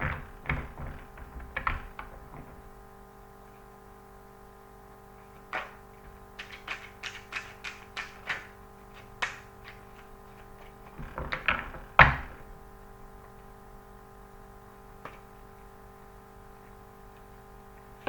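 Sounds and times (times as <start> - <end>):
cards tapping and slapping on table: 5.4 - 12.4
cards thumping on table: 5.4 - 12.5, 15.0 - 15.3.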